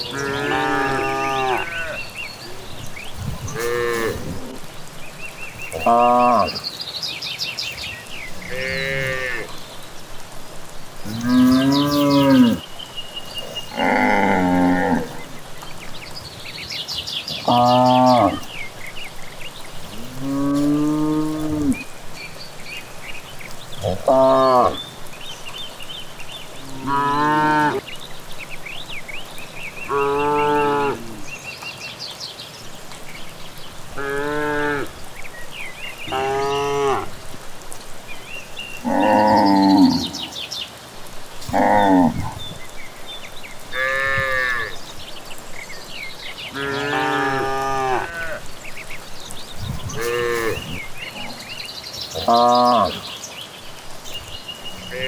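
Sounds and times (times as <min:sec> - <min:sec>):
cattle mooing: 0:00.0 - 0:02.0, 0:03.5 - 0:04.6, 0:13.7 - 0:15.2, 0:20.0 - 0:21.8, 0:46.5 - 0:48.4.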